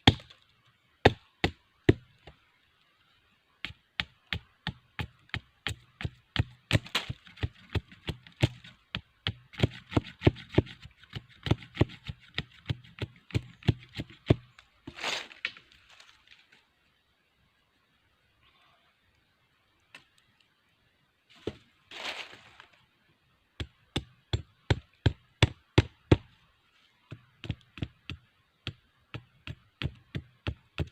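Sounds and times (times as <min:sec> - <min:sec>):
blade chopping wood: 0:00.0 - 0:00.3, 0:04.0 - 0:08.7
rustling crackle: 0:21.9 - 0:22.9.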